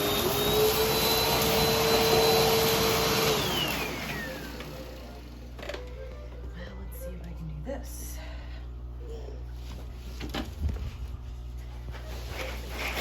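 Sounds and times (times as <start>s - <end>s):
vacuum cleaner motor whining: 0.0s - 7.3s, 10.7s - 13.0s.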